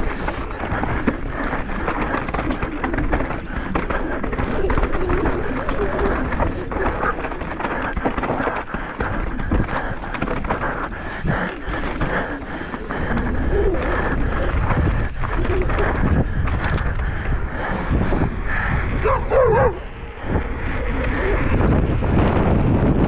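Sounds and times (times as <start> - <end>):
bike rattles and knocks: 0.0 - 18.2
mountain bike riding over rough ground: 0.0 - 18.5
wind rumbling on microphone: 0.0 - 23.0.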